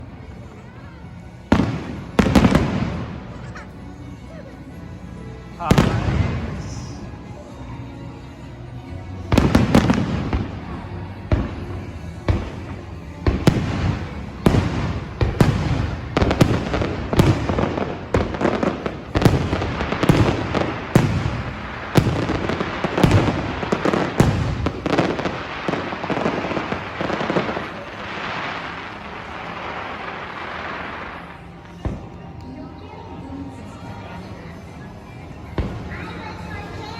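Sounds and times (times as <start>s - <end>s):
firework crackling: 1.5s - 3.7s, 5.5s - 7.2s, 9.3s - 32.5s.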